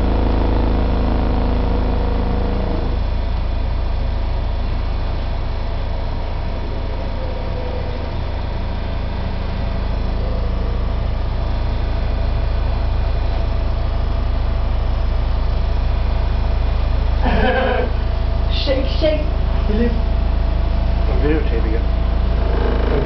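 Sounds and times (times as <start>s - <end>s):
construction vehicles rumbling: 15.3s - 23.0s.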